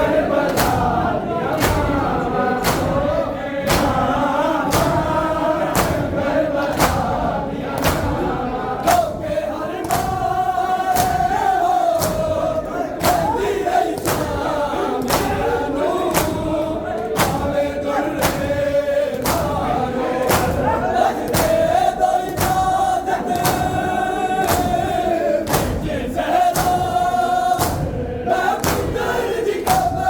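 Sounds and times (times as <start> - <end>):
crowd of men chanting: 0.0 - 30.0.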